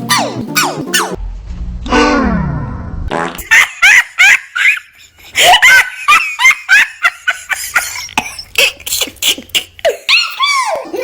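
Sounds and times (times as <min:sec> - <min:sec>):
high-pitched laughter: 0:03.4 - 0:11.0.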